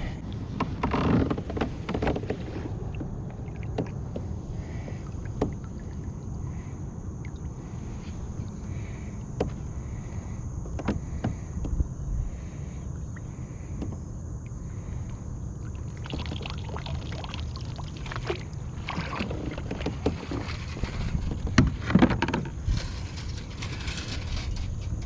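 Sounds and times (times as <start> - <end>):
steady low rumble: 2.3 - 16.1, 17.7 - 25.0
water splashing and dripping: 15.8 - 19.9.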